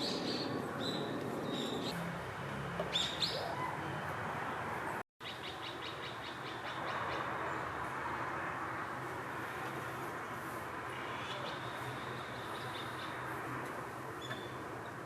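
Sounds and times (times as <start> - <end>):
bird calls: 0.0 - 2.0, 2.8 - 3.9, 11.0 - 13.3, 14.2 - 14.6.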